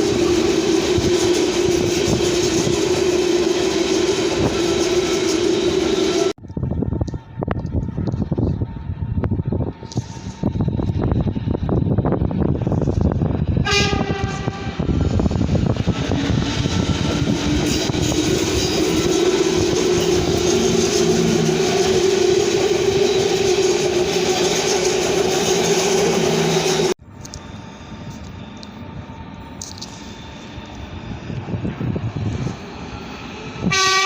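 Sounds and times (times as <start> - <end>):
train passing with whine: 0.0 - 34.0
train horn blast: 13.6 - 14.9, 33.6 - 34.0.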